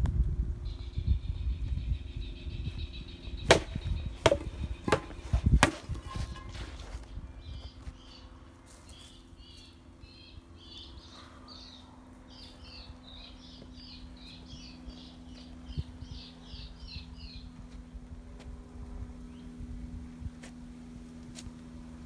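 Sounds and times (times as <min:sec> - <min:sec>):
songbird chirping: 0:00.6 - 0:18.1
dull thump: 0:03.5 - 0:06.6.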